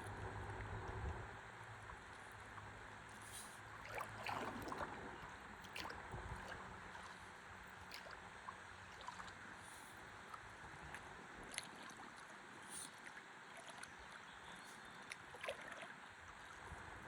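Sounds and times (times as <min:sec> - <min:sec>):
light water splashes: 0:00.0 - 0:17.0
water lapping and trickling: 0:00.0 - 0:17.0.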